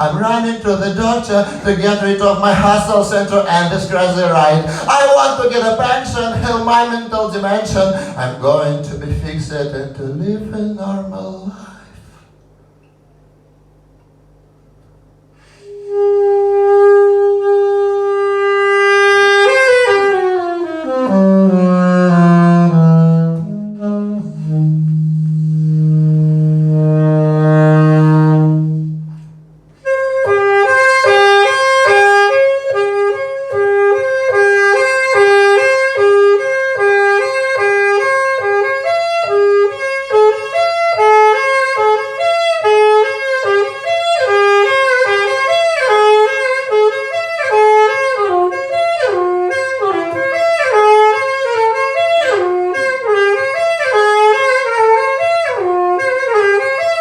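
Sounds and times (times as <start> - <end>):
held low note: 19.8 - 42.4.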